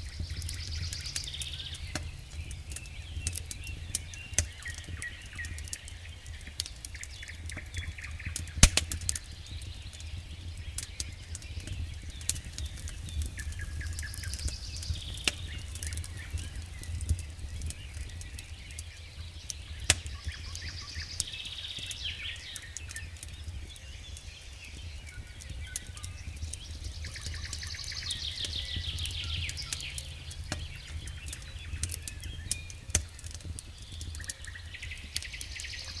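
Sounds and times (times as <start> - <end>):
steady low rumble: 0.0 - 5.3, 26.2 - 35.2
campfire crackling and popping: 0.0 - 36.0
songbirds trilling: 0.0 - 36.0.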